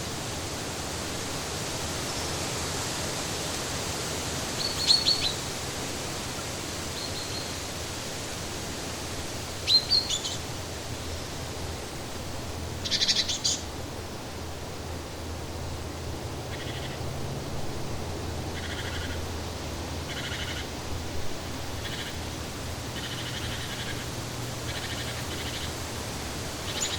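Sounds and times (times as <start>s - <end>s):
birds chirping and calling: 12.8s - 13.7s, 18.6s - 19.2s, 20.1s - 20.7s, 21.8s - 22.3s, 22.9s - 25.8s, 26.6s - 26.9s
steady rushing noise: 13.6s - 26.9s.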